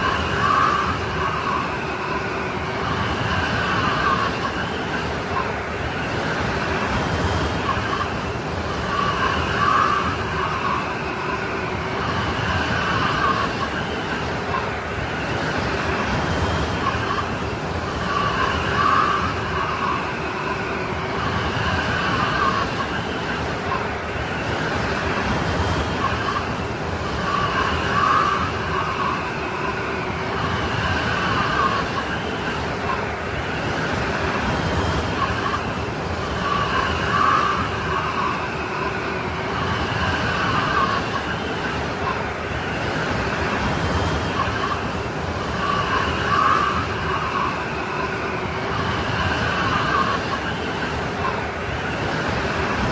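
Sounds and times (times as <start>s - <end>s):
snowstorm wind howling: 0.0s - 52.9s.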